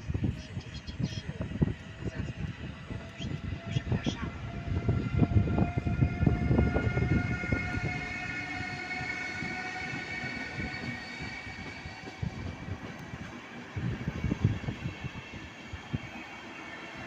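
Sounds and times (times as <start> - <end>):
train wheels rumbling and clattering: 0.0 - 17.0
high-pitched squeal: 3.0 - 12.5.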